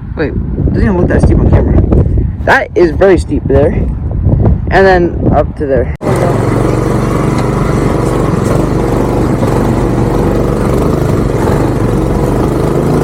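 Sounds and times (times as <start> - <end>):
minibike engine running steadily: 6.0 - 13.0.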